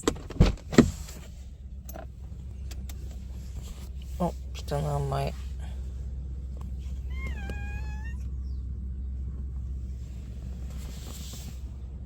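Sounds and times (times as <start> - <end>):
cat meowing: 7.0 - 8.3.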